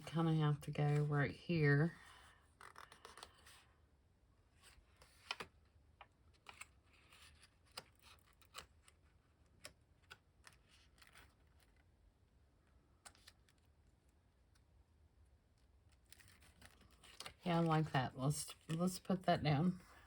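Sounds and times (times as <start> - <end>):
paper and card rustling: 0.0 - 3.8, 4.6 - 12.0, 15.6 - 20.0.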